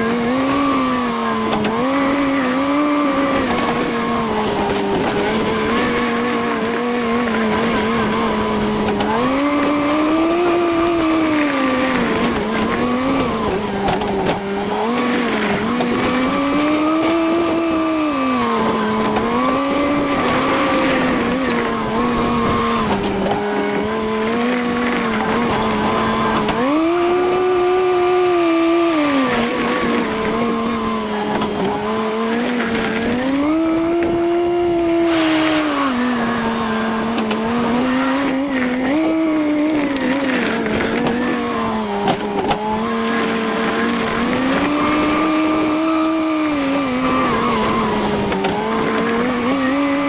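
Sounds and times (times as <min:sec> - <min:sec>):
tractor engine running: 0:00.0 - 0:50.0.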